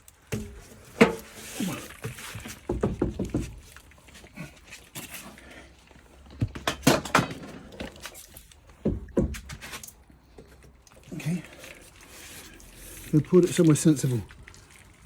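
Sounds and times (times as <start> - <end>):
knocks and clunks of wheel and tools: 0.3 - 1.4, 2.0 - 3.8, 6.2 - 10.7.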